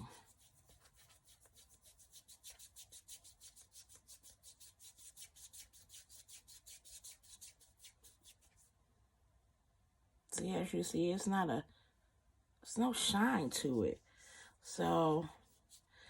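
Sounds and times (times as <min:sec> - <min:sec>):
fingers rubbing dry hair: 0:00.0 - 0:08.8, 0:14.8 - 0:15.9.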